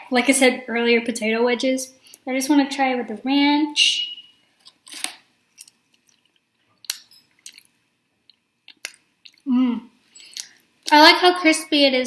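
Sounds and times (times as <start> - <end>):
wet mouth clicks: 8.3 - 9.5.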